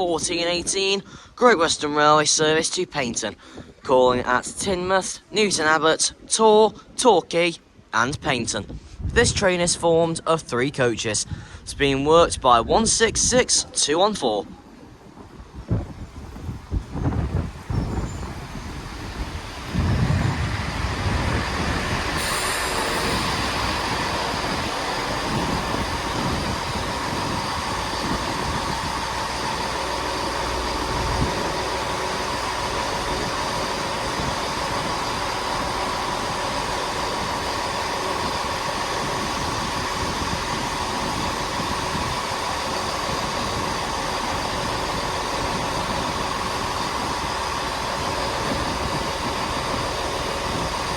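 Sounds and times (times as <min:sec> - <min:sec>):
diesel train pulling in: 0:14.6 - 0:50.9
diesel engines idling hum: 0:15.8 - 0:50.9.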